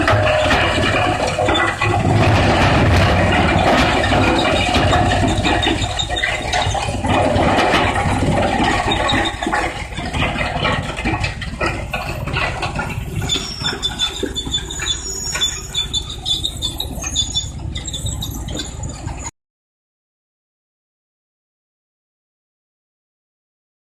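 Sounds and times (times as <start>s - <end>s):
wood shredder grinding and cracking: 0.0s - 19.2s
low machine rumble: 0.0s - 19.3s
high thin squeals: 13.1s - 18.9s.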